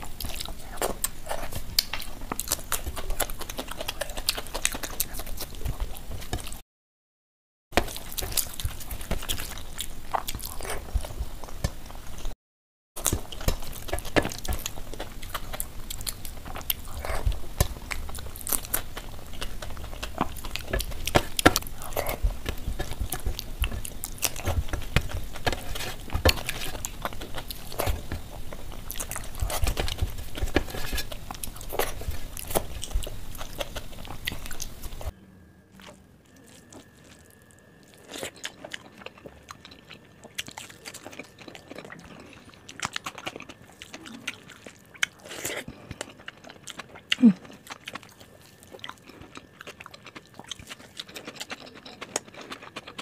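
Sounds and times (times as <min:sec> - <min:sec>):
person chewing wetly: 0:00.0 - 0:06.6, 0:07.8 - 0:12.4, 0:13.0 - 0:35.2, 0:35.8 - 0:53.0
fingers mixing food on plate: 0:13.0 - 0:35.1
faint steady tone: 0:33.2 - 0:50.9.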